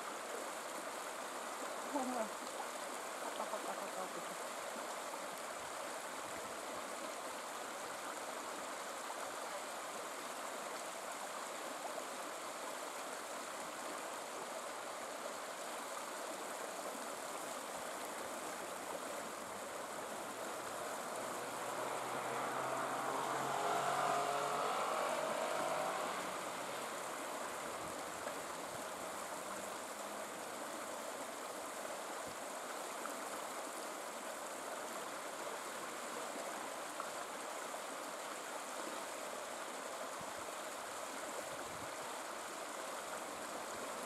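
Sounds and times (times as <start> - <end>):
river water flowing: 0.0 - 44.0.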